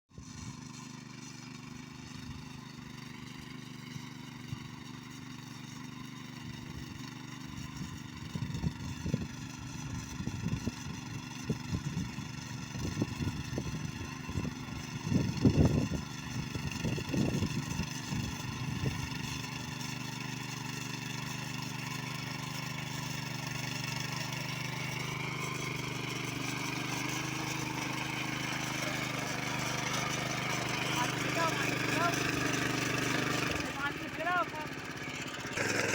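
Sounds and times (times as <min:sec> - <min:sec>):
small engine running: 0:00.1 - 0:35.9.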